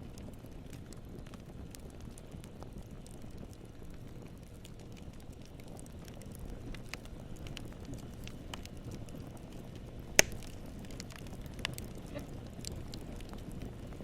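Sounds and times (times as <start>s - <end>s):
campfire crackling: 0.0s - 14.0s
loud pop of burning wood: 10.1s - 12.0s.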